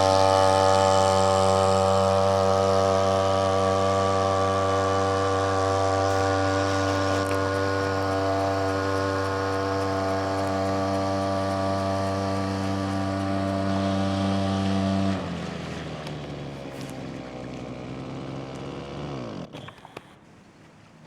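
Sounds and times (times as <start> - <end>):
small outboard motor engine running: 0.0 - 21.0.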